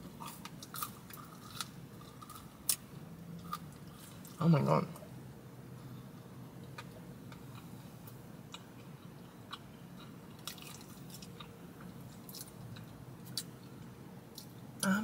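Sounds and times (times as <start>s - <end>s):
breadstick crunching while chewing: 0.2s - 2.8s, 8.5s - 11.6s.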